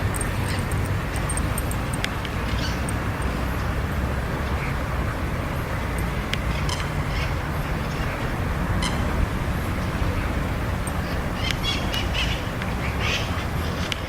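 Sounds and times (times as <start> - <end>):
steady low rumble: 0.0 - 13.6.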